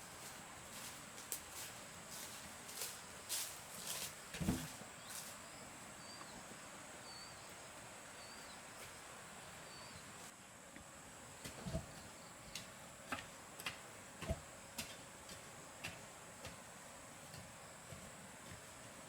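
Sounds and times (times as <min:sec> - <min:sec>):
dull thump: 0:04.4 - 0:04.8.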